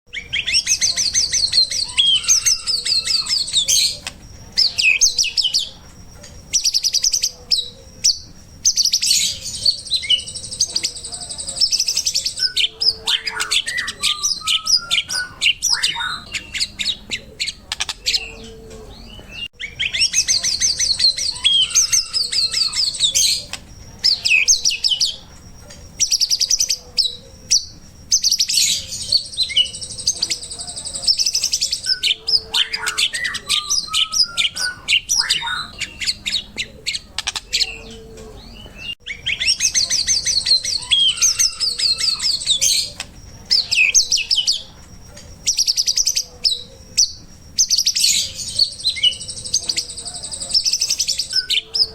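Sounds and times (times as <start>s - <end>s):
songbird singing trills: 0.1s - 51.9s.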